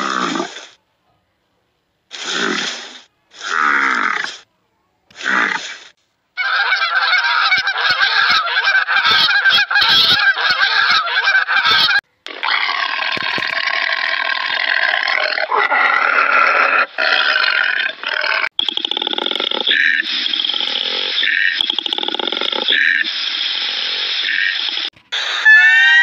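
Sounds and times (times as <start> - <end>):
geese honking and cackling: 6.4 - 12.0, 25.2 - 26.0.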